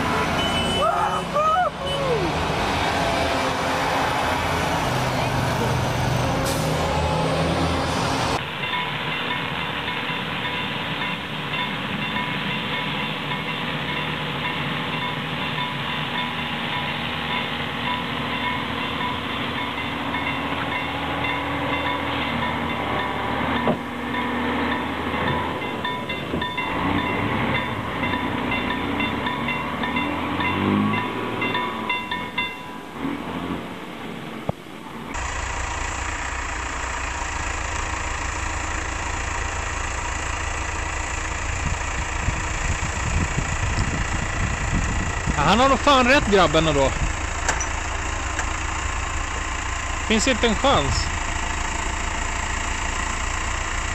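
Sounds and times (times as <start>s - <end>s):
train rumbling along track: 0.0s - 53.9s
vehicle engine idling: 35.1s - 53.9s.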